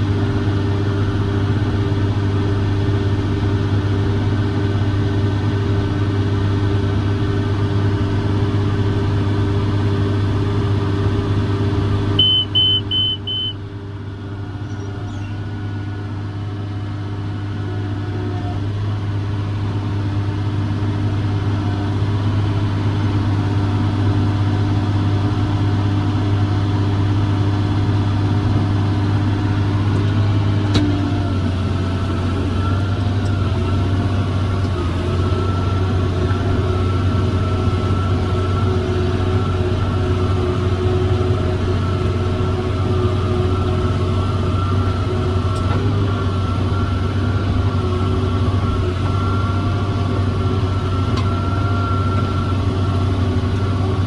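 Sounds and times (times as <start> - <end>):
tractor diesel engine running: 0.0 - 54.0
short high beeps: 12.2 - 13.6.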